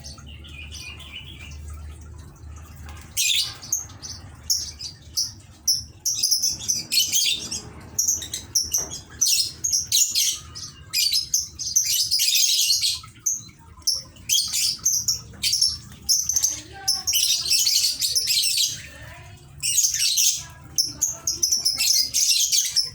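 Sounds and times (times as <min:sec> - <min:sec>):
birds chattering shrill chirps: 0:00.0 - 0:22.9.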